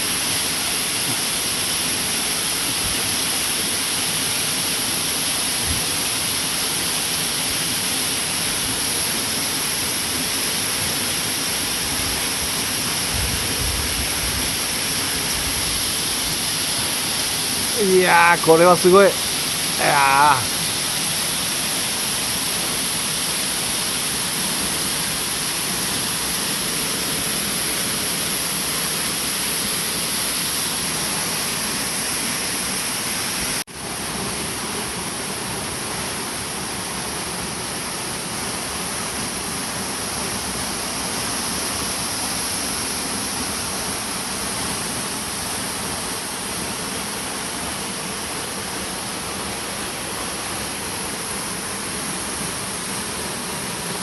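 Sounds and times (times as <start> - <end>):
waterfall roaring: 0.0 - 54.0.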